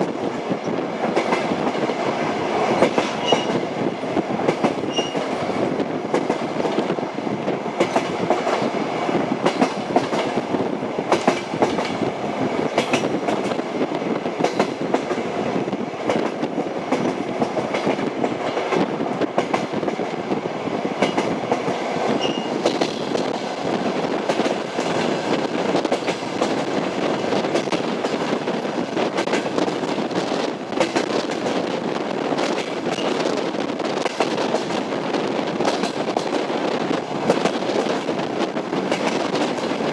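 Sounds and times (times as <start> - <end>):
train rumbling on rails: 0.0 - 39.9
wheels clacking over rail joints: 1.0 - 3.7, 7.7 - 8.7, 24.2 - 31.6.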